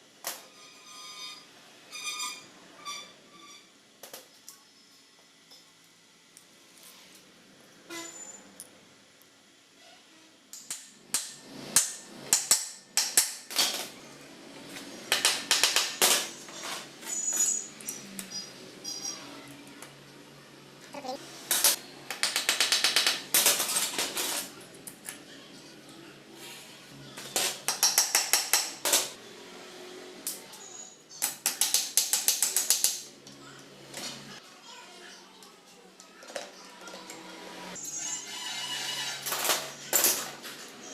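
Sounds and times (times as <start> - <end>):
metal tools clinking on engine parts: 17.0 - 19.1.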